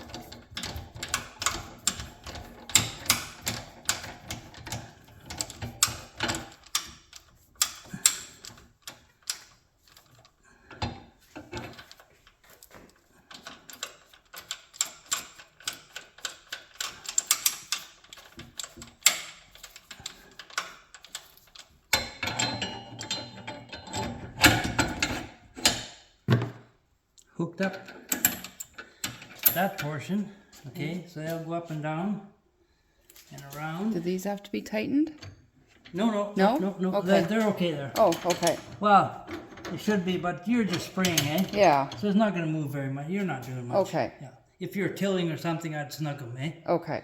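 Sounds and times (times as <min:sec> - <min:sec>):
metal hitch hardware clinking: 0:00.0 - 0:26.1, 0:27.7 - 0:30.1, 0:35.2 - 0:42.1.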